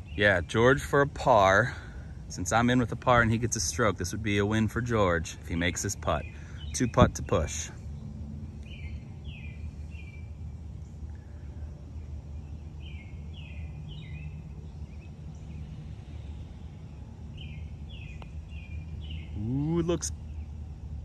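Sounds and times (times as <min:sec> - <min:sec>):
low outdoor rumble: 0:00.0 - 0:21.0
bird singing whistled notes: 0:08.6 - 0:10.4, 0:12.2 - 0:20.6.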